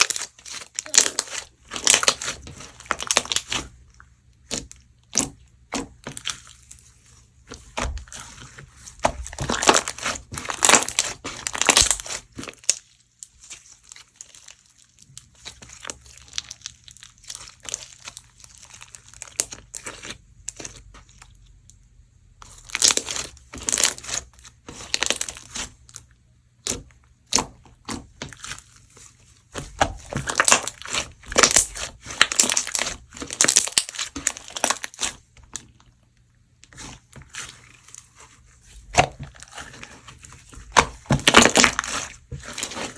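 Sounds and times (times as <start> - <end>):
slime crackling when squeezed: 9.3 - 12.9, 29.8 - 35.2.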